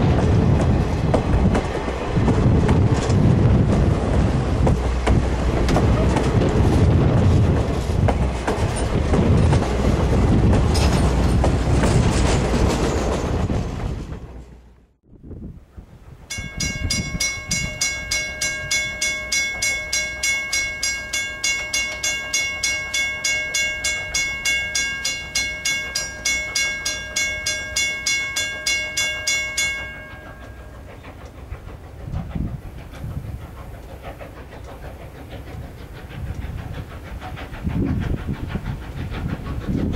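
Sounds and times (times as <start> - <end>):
train rumbling past: 0.0 - 39.9
railroad crossing bell dinging: 16.3 - 31.0.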